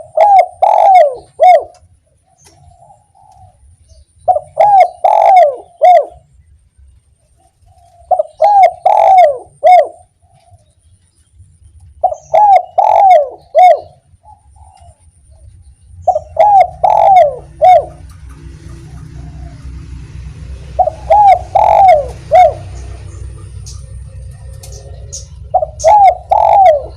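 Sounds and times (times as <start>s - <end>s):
dove cooing: 0.0s - 6.3s, 7.4s - 10.7s, 11.9s - 26.9s
low steady rumble: 0.0s - 26.9s.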